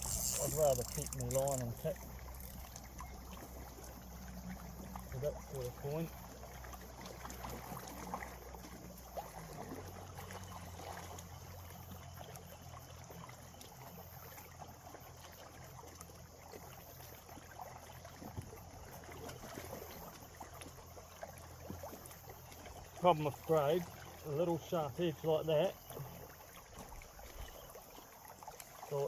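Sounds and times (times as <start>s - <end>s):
light ticks: 0.0s - 3.1s
small water sounds: 0.0s - 29.0s.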